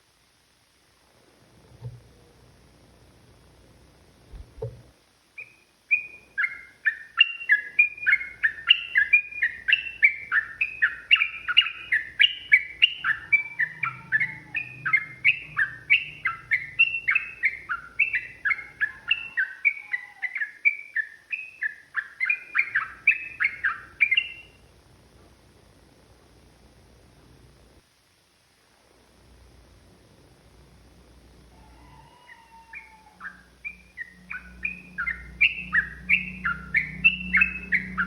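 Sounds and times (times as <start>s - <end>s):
bird singing bubbling notes: 5.4s - 24.6s, 32.8s - 38.0s.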